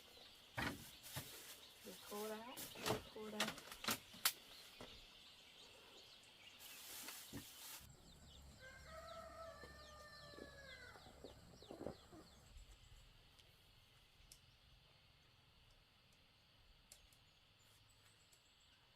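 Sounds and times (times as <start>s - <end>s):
rooster crowing: 8.5s - 11.2s.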